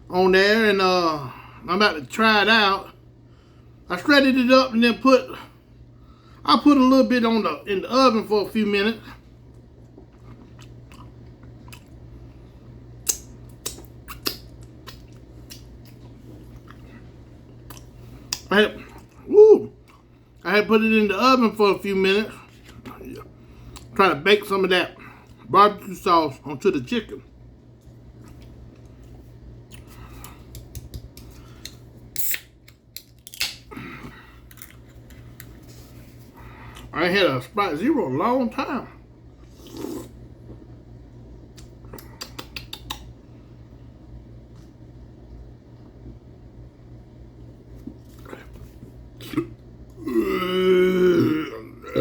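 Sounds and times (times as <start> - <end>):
man chewing food: 9.5 - 12.2, 13.0 - 20.2, 27.7 - 32.0, 32.6 - 36.9, 39.4 - 40.8, 47.7 - 50.1
wet mouth clicks and smacks: 13.0 - 16.0, 41.5 - 43.1.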